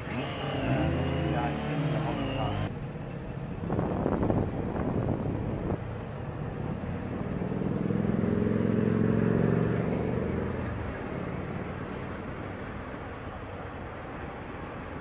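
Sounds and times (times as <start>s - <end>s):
low road rumble: 0.0s - 15.0s
motor vehicle engine droning: 0.0s - 15.0s.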